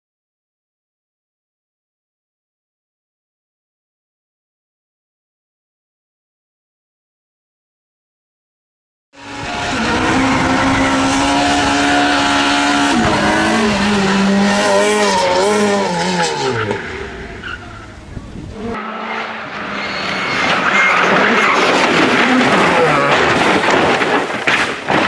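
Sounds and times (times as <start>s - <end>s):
rally car engine revving: 9.2s - 24.1s
tyres skidding: 9.2s - 25.0s.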